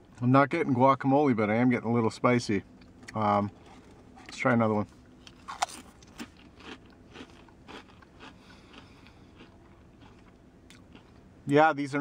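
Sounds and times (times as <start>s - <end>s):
chewing crisps crunching: 5.2s - 11.2s.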